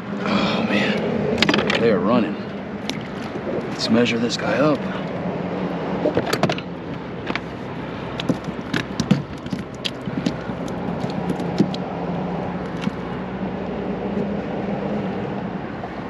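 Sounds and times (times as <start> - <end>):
steady low hum: 0.0 - 16.0
fish being handled on board: 8.1 - 11.8.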